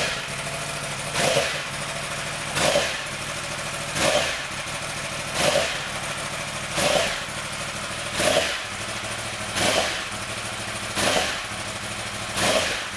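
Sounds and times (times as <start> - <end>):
engine idling: 0.0 - 12.9.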